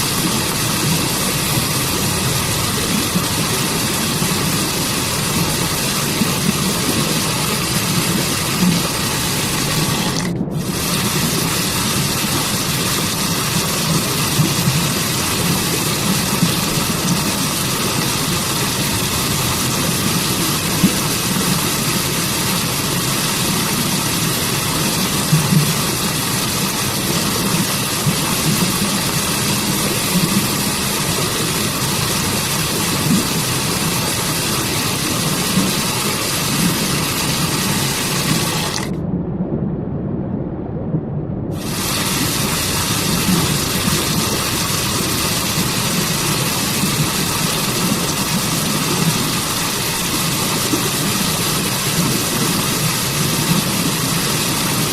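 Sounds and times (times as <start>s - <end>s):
waterfall rushing hiss: 0.0s - 38.9s, 41.6s - 54.9s
low rumble: 9.0s - 11.7s, 38.8s - 44.7s.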